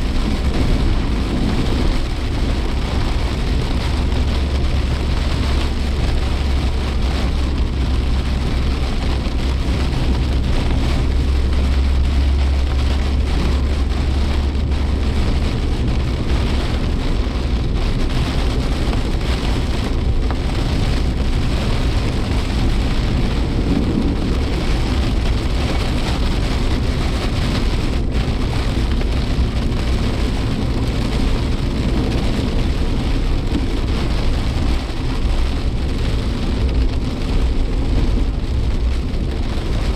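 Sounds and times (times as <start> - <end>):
engine and road noise rumble: 0.0 - 39.9
heavy rain on a car: 0.0 - 39.9.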